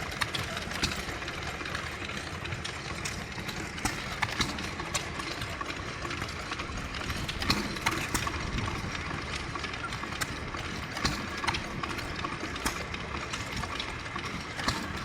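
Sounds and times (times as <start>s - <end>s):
sharp clicks and knocks: 0.0s - 15.0s
stationary engines running: 0.0s - 15.0s.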